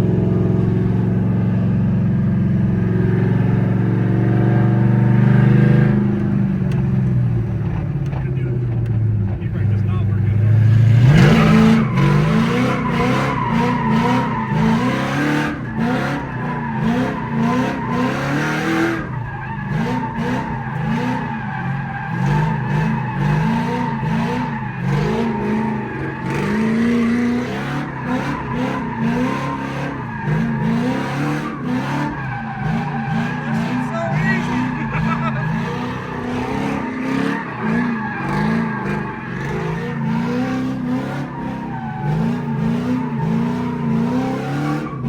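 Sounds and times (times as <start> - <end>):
car engine revving: 0.0 - 45.0
tyres squealing: 11.2 - 45.0.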